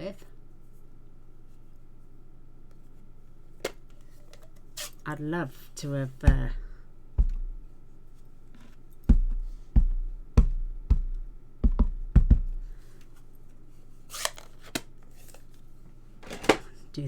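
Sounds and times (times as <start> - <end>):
rubber stamp knocking: 6.3 - 7.7, 9.0 - 12.8.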